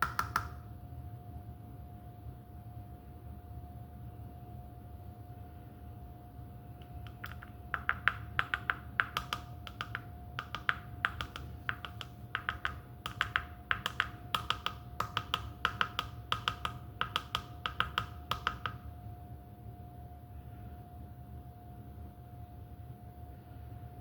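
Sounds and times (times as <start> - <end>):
faint steady hum: 0.0 - 24.0
light clicks and taps: 6.8 - 18.9.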